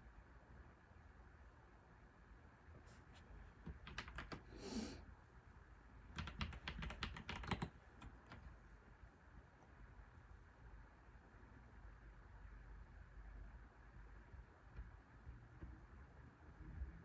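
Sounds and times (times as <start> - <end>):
keyboard typing: 3.6 - 4.5, 6.1 - 8.5.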